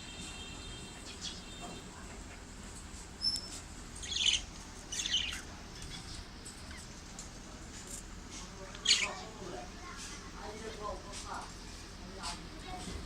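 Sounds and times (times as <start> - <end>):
budgerigars chirping chatter: 4.0 - 6.9, 8.8 - 9.3.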